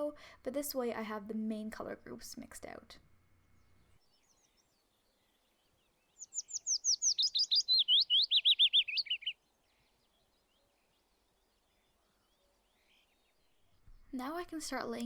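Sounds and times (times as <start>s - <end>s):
songbird singing: 3.3s - 15.0s.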